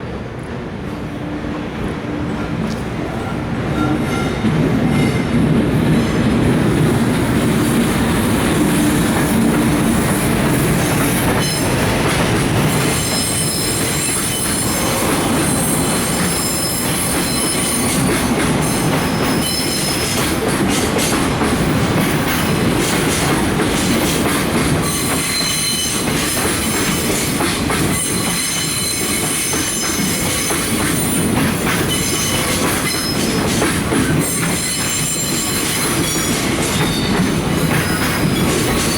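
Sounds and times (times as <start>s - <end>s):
high-pitched wheel squeal: 12.9s - 18.0s.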